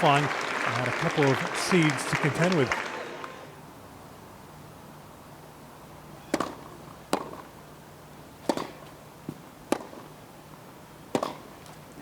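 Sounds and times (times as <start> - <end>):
tennis balls struck by racquets: 6.2 - 7.6, 8.3 - 12.0.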